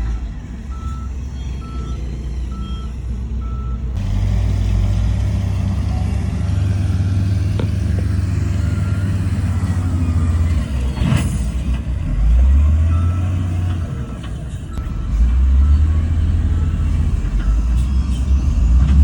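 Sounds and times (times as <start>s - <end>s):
diesel engine running: 0.0s - 19.0s
reversing alarm beeping: 0.7s - 4.0s, 12.8s - 18.9s.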